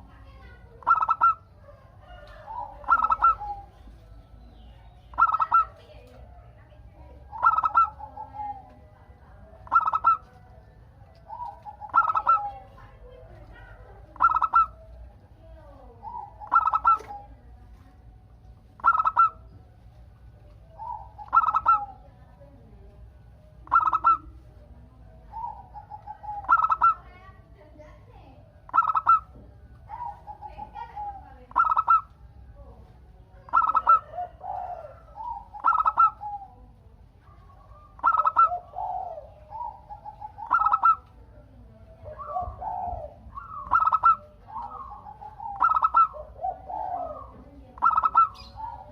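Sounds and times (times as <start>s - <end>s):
dove cooing: 0.0s - 48.9s.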